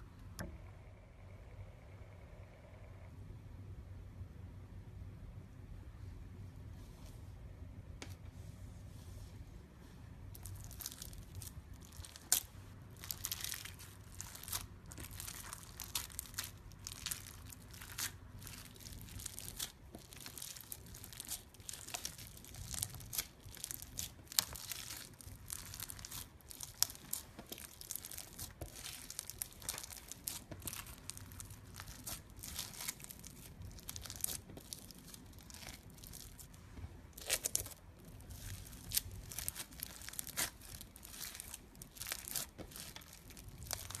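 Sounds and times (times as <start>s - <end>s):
slime crackling and popping: 10.4s - 44.0s.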